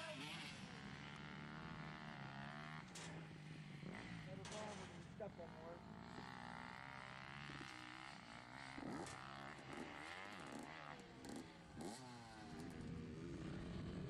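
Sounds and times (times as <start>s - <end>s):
motorbike engine revving: 0.0s - 14.0s.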